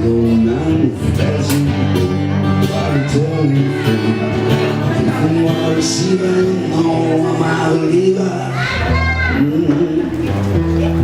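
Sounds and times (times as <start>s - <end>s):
live band playing instrumental: 0.1s - 11.0s.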